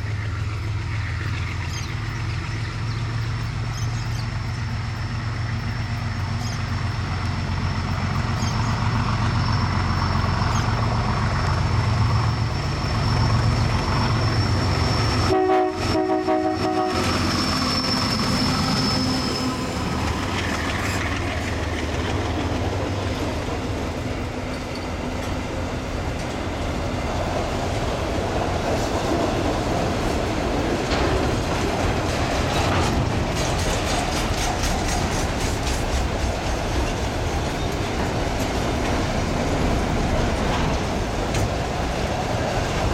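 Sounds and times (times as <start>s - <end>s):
train rumbling on rails: 0.0s - 42.9s
train wheel clatter: 0.0s - 42.9s
train horn: 15.2s - 19.5s.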